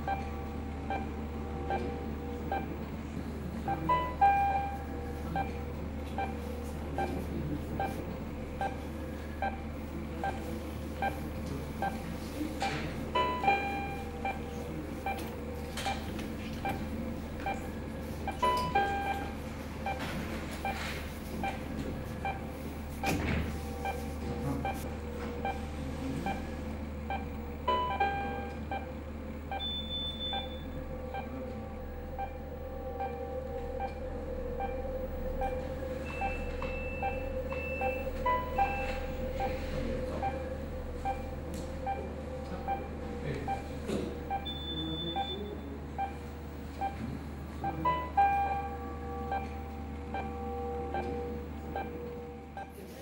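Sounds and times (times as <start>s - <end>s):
steady electronic drone: 0.0s - 53.0s
longer higher electronic tone: 29.4s - 45.7s.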